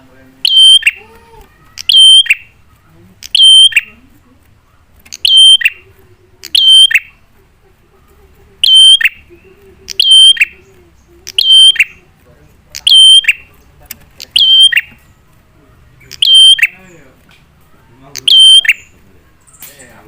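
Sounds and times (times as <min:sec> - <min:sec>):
bird calling high ringing call: 0:01.8 - 0:02.6, 0:05.2 - 0:05.8, 0:06.6 - 0:07.1, 0:08.6 - 0:09.2, 0:10.0 - 0:10.6, 0:12.8 - 0:13.5, 0:14.3 - 0:15.0, 0:16.2 - 0:16.9, 0:18.2 - 0:19.6.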